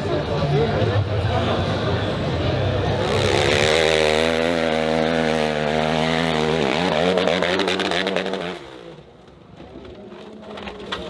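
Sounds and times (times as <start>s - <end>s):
dirt bike engine revving: 2.9s - 9.0s.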